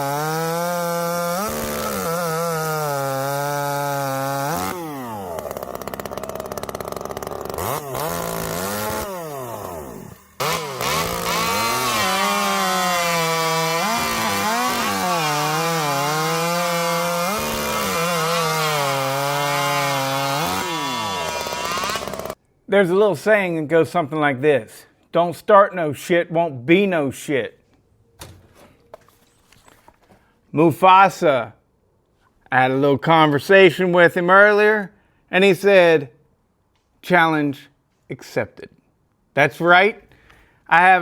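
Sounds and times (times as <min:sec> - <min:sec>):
chainsaw cutting at high revs: 0:00.0 - 0:22.4.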